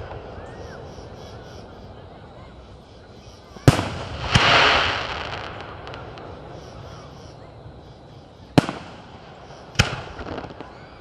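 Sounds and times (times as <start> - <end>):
firework crackling hiss: 0.0 - 11.0
firework bang: 3.5 - 7.1, 8.5 - 11.0.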